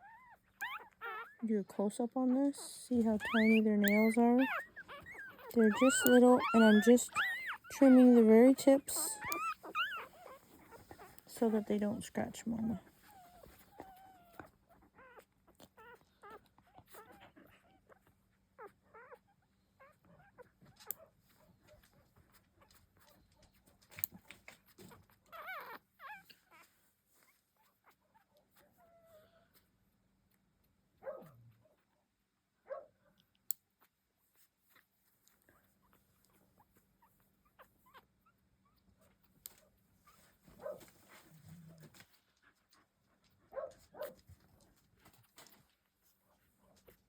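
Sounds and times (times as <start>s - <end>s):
puppy whimpering: 0.0s - 1.5s, 2.6s - 11.7s, 12.6s - 29.7s, 35.5s - 44.3s.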